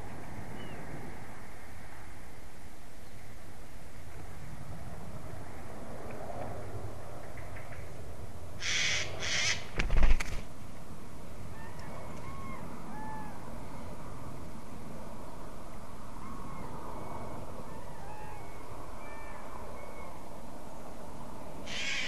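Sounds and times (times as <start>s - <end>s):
distant bird calls: 0.0s - 1.0s, 7.0s - 9.8s, 11.4s - 14.0s, 16.1s - 20.4s, 21.6s - 22.0s.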